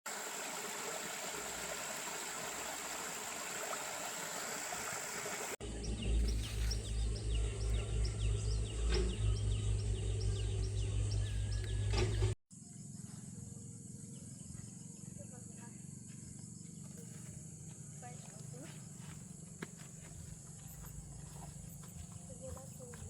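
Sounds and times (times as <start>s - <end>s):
pulsing low rumble: 5.6s - 12.3s
bird chirping: 5.7s - 13.2s.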